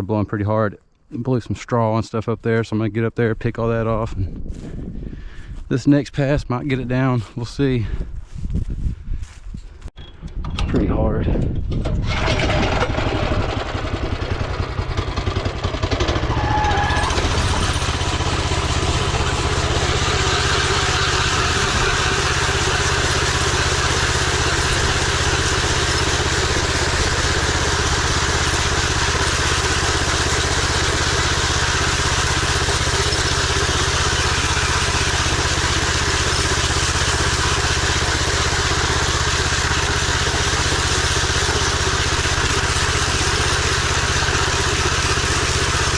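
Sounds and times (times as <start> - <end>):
power trowel engine running: 11.8 - 45.9.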